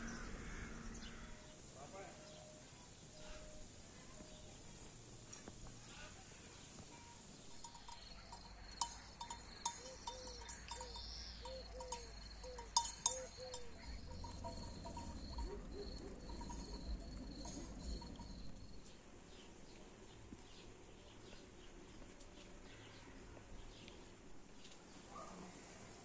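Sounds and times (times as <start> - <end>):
cricket chirping: 7.2 - 19.0
low arched calls: 7.5 - 18.8.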